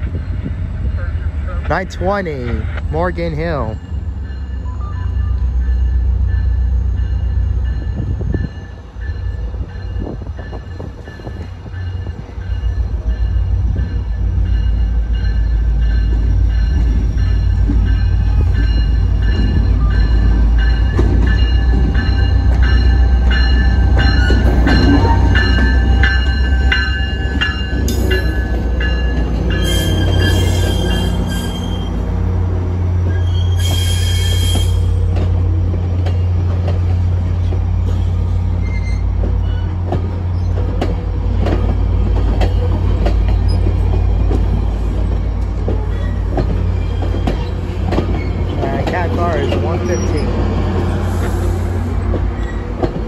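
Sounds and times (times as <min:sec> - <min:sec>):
locomotive engine rumbling: 0:00.0 - 0:53.0
wheels squealing: 0:29.2 - 0:32.0, 0:33.0 - 0:35.0, 0:38.0 - 0:40.8
hissing squeals: 0:33.1 - 0:35.0.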